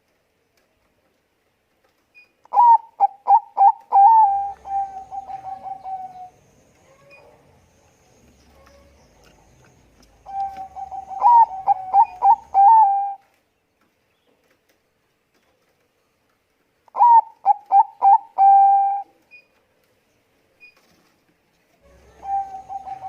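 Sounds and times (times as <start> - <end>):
dove cooing: 2.5 - 7.4, 8.5 - 13.2, 16.9 - 19.1, 21.8 - 23.0.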